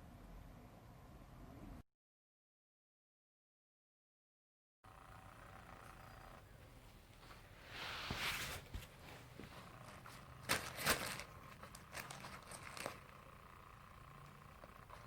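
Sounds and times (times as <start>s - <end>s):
faint steady hum: 4.9s - 15.0s
cats scuffling and rustling: 6.8s - 13.0s.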